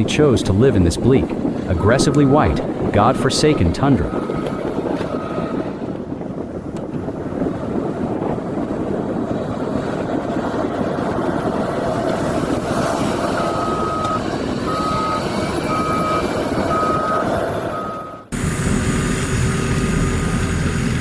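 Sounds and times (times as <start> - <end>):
snow-clearing machine running: 0.0 - 21.0
reversing alarm beeping: 1.6 - 5.6, 13.2 - 18.3.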